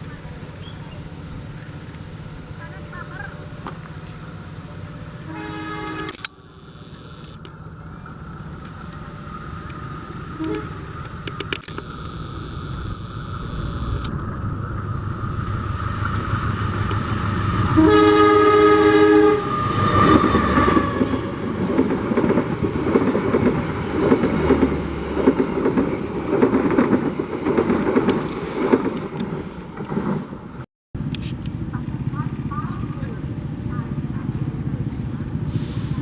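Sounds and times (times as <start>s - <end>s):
train engine drone: 0.0s - 36.0s
train horn blast: 5.2s - 6.4s, 10.2s - 11.2s, 15.8s - 21.6s
wheels clattering over rail joints: 15.5s - 36.0s.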